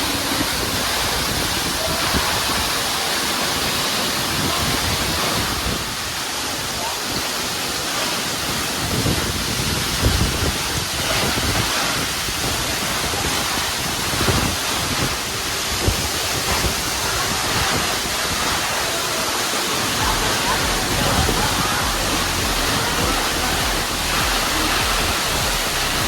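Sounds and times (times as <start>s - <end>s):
waterfall roar: 0.0s - 26.0s
low rumbling: 19.9s - 26.0s.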